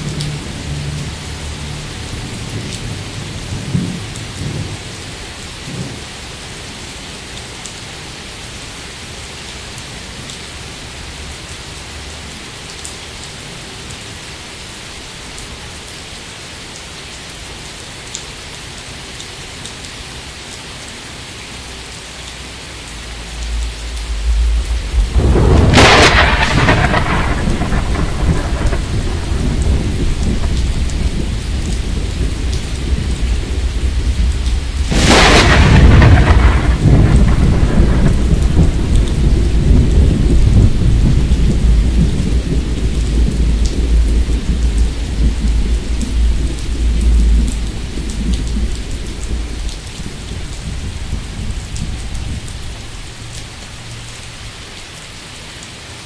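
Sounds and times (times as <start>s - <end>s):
thunder cracking and rumbling: 0.0s - 4.8s, 23.4s - 53.0s
steady rain: 0.0s - 56.0s.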